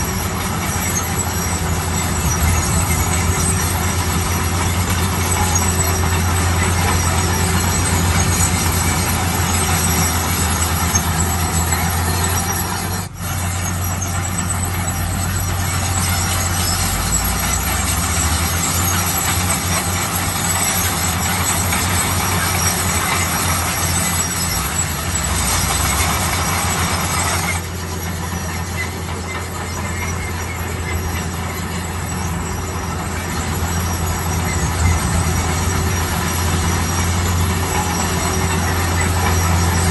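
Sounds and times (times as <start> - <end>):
heavy construction machinery running: 0.0 - 39.9.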